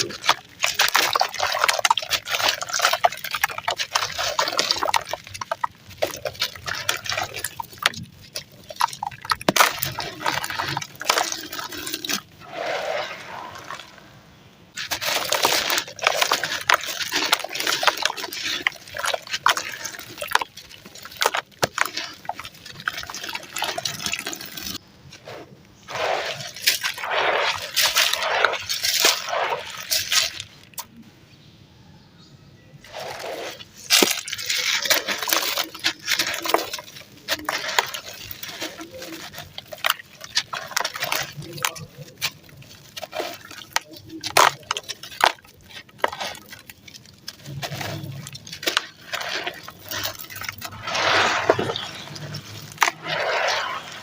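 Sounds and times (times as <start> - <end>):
powder crushed crackling and crunching: 0.0 - 14.0, 14.7 - 30.9, 32.8 - 54.0.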